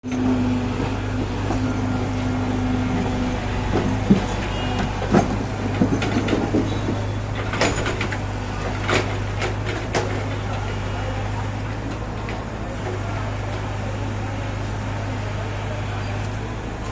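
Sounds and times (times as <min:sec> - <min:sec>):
diesel engine running: 0:00.0 - 0:16.9
metal clanks and knocks: 0:00.1 - 0:10.8.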